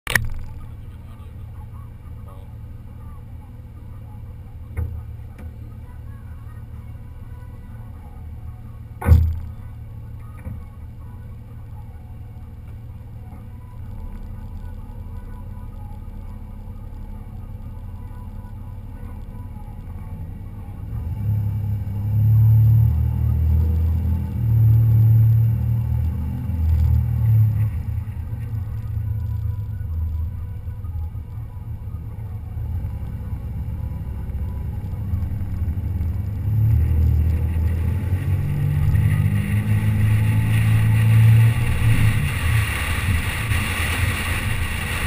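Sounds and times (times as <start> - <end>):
car rumble: 0.0 - 45.0
sharp thump: 9.0 - 9.5.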